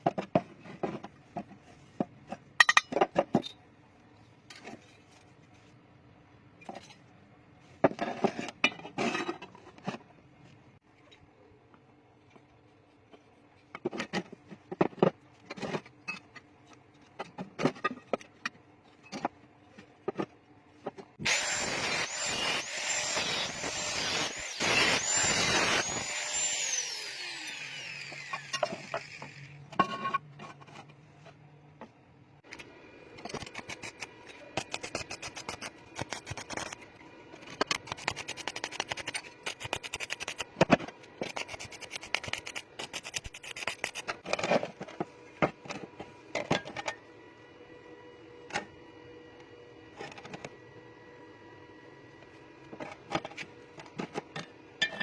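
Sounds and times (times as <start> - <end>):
power tool whining: 21.2 - 29.6.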